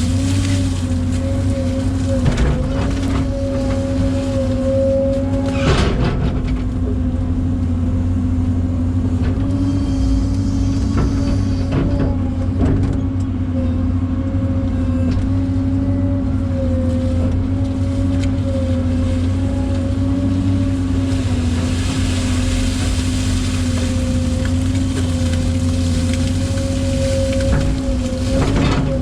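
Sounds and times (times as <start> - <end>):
large engine rumble with whine: 0.0 - 29.0.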